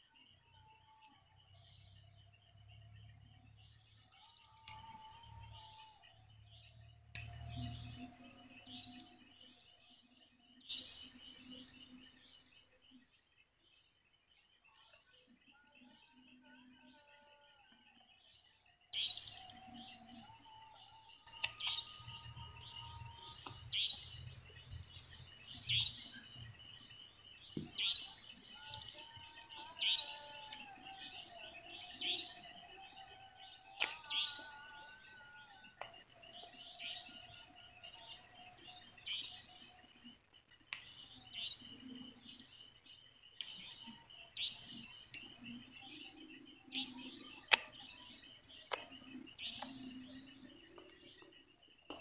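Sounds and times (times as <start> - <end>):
birds chirping and calling: 19.0 - 52.0.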